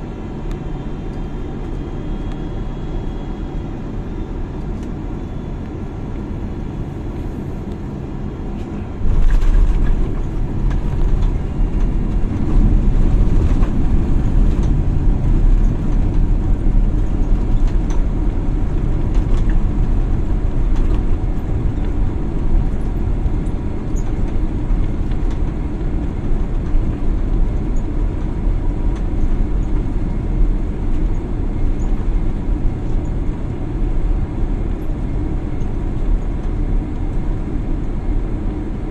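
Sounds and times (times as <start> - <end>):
airliner engine hum: 0.0 - 38.9
wheels touching down rumble: 8.5 - 32.2.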